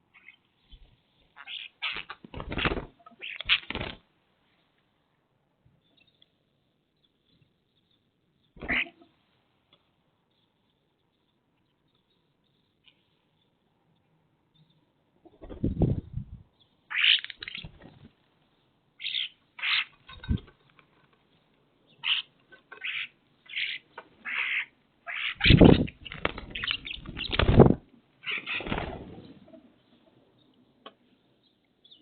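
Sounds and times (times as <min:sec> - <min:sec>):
birds chirping and squawking: 0:00.1 - 0:04.0, 0:08.4 - 0:09.1, 0:16.9 - 0:18.1, 0:19.0 - 0:20.7, 0:21.9 - 0:30.2.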